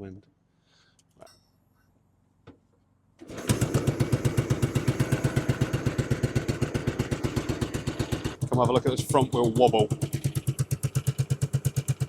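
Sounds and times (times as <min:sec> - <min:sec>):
motorcycle engine kick-started: 0:03.2 - 0:12.0
motorcycle engine idling: 0:03.3 - 0:12.0.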